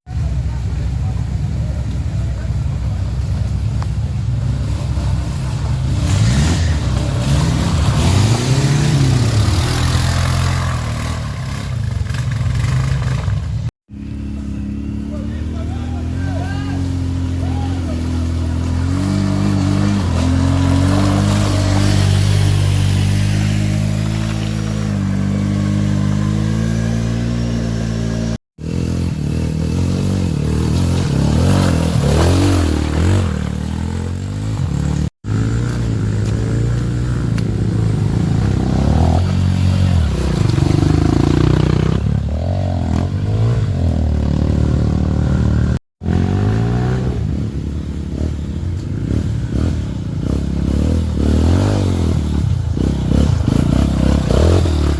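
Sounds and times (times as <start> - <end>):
motorcycle engines revving: 0.1 - 54.9.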